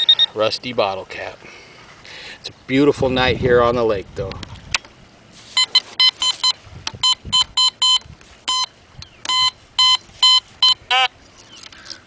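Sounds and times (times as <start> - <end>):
metal detector beeping: 0.0 - 0.4, 5.6 - 11.1.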